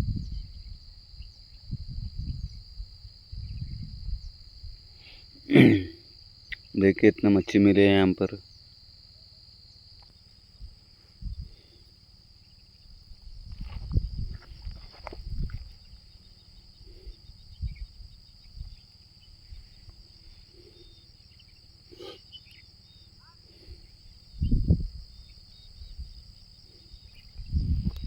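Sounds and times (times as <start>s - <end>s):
insects trilling: 0.0s - 28.0s
low bumps and rustles: 13.2s - 15.9s.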